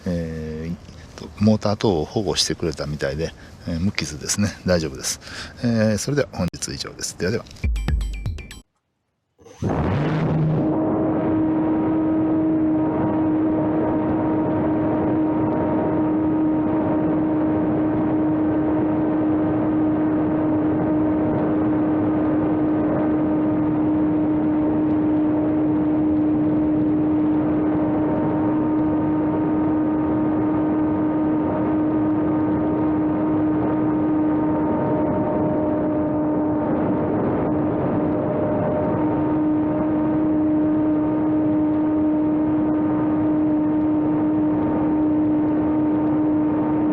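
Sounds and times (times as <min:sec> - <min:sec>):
wind and airflow noise: 0:00.0 - 0:07.6, 0:09.4 - 0:46.9
model airplane motor whine: 0:09.4 - 0:46.9.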